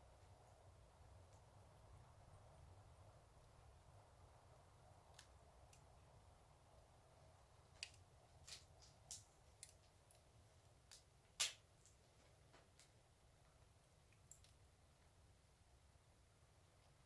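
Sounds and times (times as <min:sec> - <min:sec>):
fireplace fire crackling: 0:00.0 - 0:15.6
sharp pops of fire: 0:10.9 - 0:11.7.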